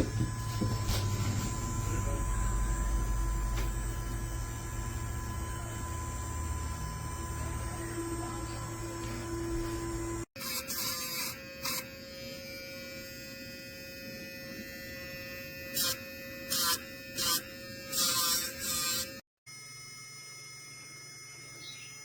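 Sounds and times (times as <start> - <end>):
electric nail grinder whine: 0.0 - 22.0
grinder grinding dog nails: 7.4 - 19.2.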